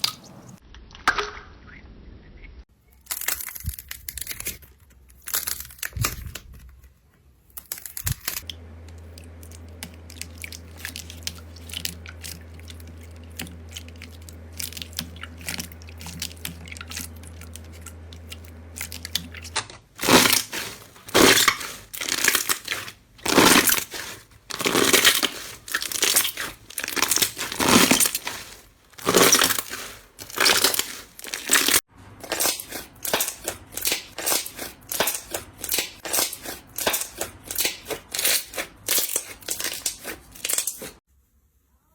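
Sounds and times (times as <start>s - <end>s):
slime squishing and crunching: 3.0s - 6.8s, 9.1s - 41.0s
low steady hum: 7.9s - 37.5s
slime crackling: 9.4s - 41.0s.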